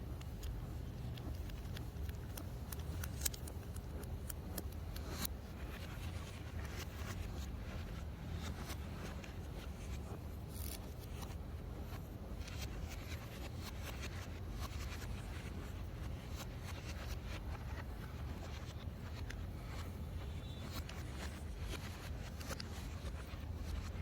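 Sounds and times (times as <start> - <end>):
steady low hum: 0.0 - 24.0
small clicks of parts handled: 0.2 - 5.9.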